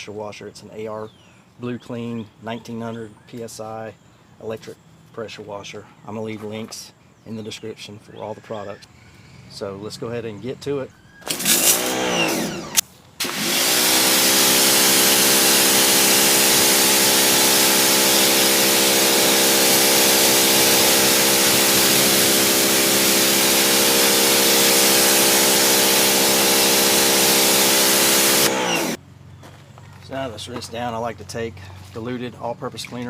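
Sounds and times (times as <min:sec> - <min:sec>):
pressure washer motor and pump: 0:11.2 - 0:29.0
high-pressure water spray hiss: 0:13.5 - 0:28.5.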